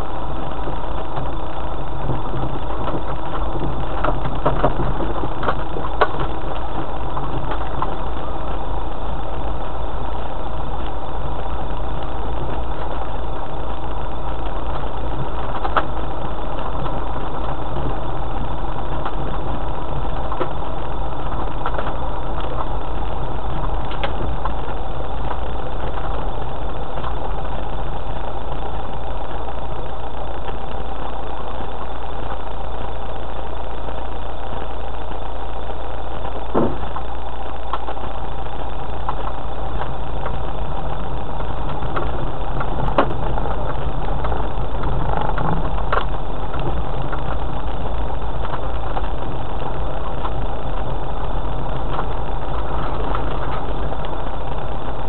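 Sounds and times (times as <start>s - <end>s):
vehicle engine running at low speed: 0.0s - 55.0s
short knocks: 36.5s - 36.8s.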